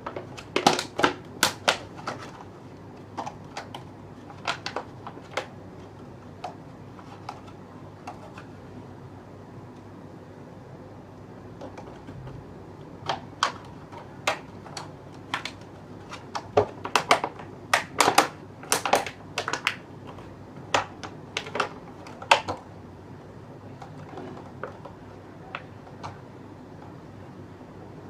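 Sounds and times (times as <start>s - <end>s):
plastic bottle crackling: 0.0s - 8.4s, 13.1s - 22.6s
low background hiss: 0.0s - 28.0s.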